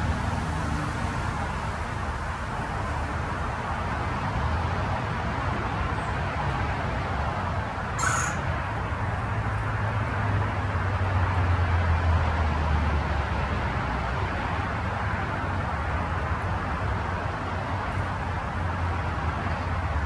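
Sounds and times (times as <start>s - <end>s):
distant road traffic rumble: 0.0s - 20.0s.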